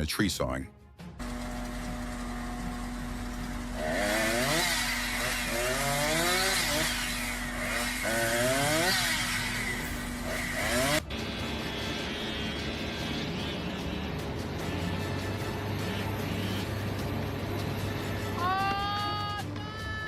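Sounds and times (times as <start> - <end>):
chainsaw idling and revving: 1.2 - 11.0.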